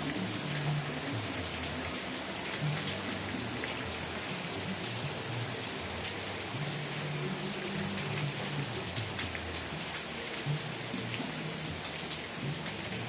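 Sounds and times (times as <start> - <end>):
raindrops ticking: 0.0 - 13.0
steady rain falling: 0.0 - 13.0.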